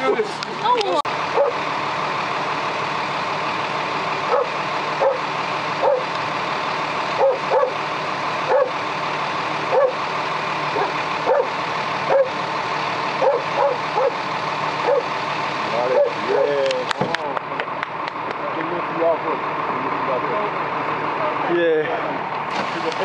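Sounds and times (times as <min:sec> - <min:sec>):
dog barking: 0:01.3 - 0:01.6, 0:04.3 - 0:06.1, 0:07.2 - 0:07.8, 0:08.5 - 0:08.8, 0:09.7 - 0:10.0, 0:10.8 - 0:12.4, 0:13.2 - 0:14.2, 0:14.8 - 0:15.1, 0:15.9 - 0:16.5.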